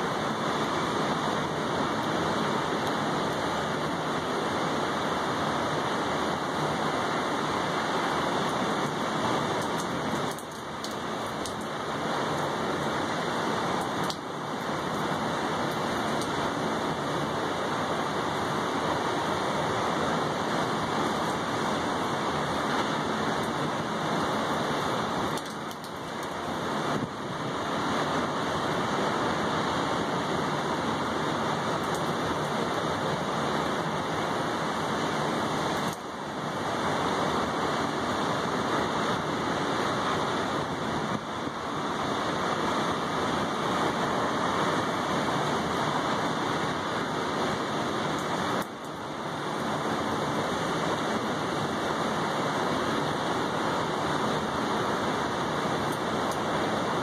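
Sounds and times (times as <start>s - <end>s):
rain falling on tabletop and railing: 0.0s - 57.0s.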